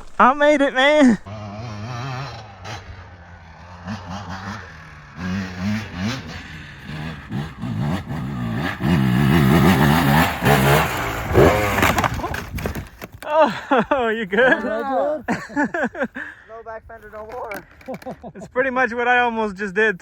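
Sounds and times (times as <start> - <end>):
dirt bike engine revving: 0.0 - 12.5.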